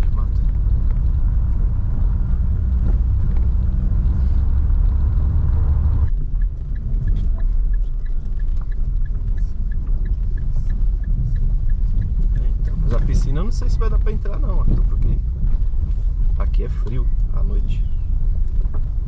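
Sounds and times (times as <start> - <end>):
car driving on dirt road: 0.0 - 19.0
faint regular ticking: 6.0 - 17.3.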